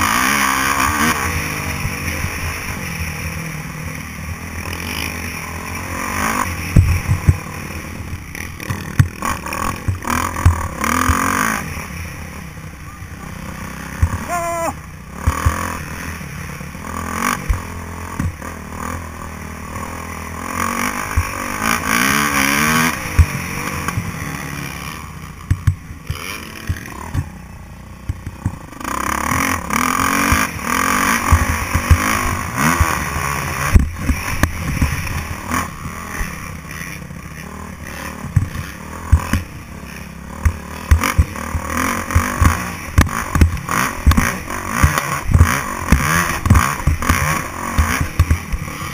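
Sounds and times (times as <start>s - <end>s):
motocross bike engine revving: 0.0s - 48.9s
sharp knocks and thumps: 8.6s - 11.3s, 25.4s - 27.3s.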